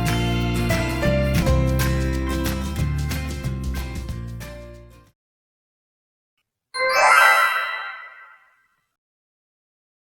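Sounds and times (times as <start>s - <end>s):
bright ringing chime: 6.8s - 8.6s.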